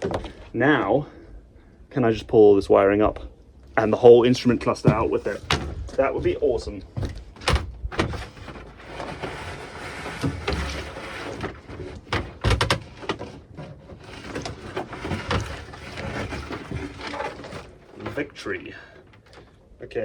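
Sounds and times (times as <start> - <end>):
wiring rustling and scraping: 3.0 - 19.8
sharp knocks and clunks: 4.4 - 18.2.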